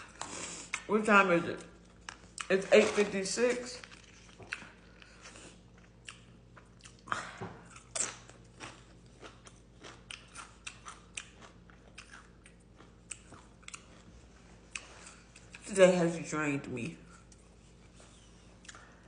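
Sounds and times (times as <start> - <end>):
person chewing food: 0.0 - 0.9, 1.6 - 2.6, 3.8 - 15.7, 17.1 - 19.0.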